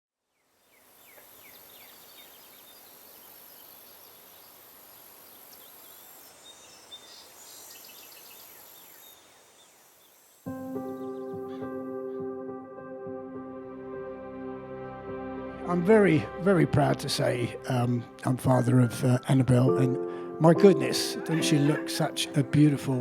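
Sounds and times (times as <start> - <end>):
high insect buzz: 0.7 - 11.3
birds chirping: 0.7 - 12.3, 17.2 - 23.0.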